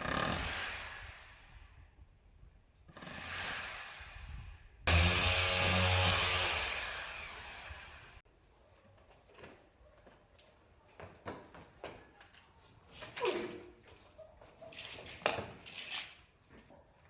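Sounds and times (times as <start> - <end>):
electric drill motor whine: 4.9 - 8.2.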